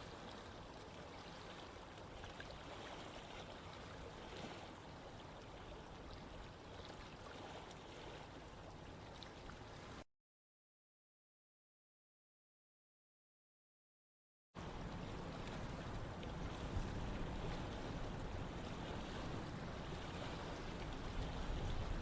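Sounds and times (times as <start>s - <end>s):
running water trickling: 14.6s - 22.0s.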